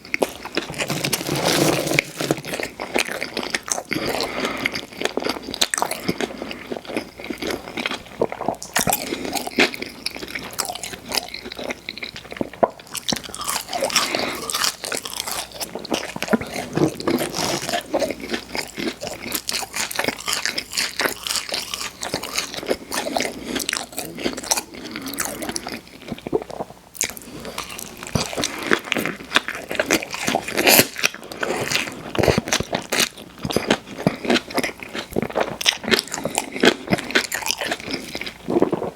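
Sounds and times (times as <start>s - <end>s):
chewing and crunching food: 0.0s - 38.9s.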